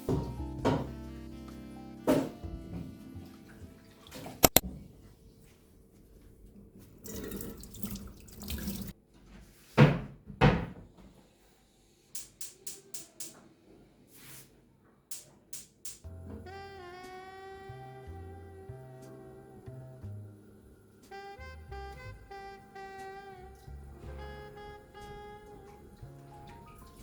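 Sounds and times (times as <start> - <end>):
background music: 0.0 - 4.6, 15.9 - 27.0
tap water running into sink: 7.0 - 9.0
quick clicks: 12.2 - 13.4, 15.1 - 16.0.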